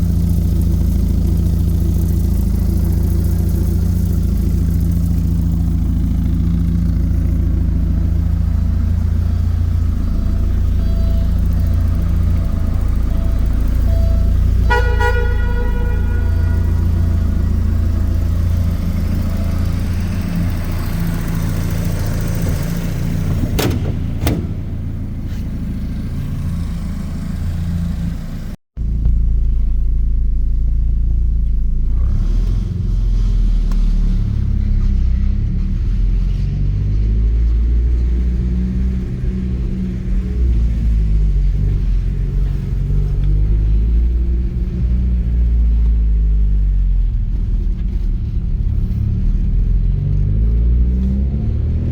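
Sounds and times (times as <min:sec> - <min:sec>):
car engine rumbling and revving: 0:00.0 - 0:51.9.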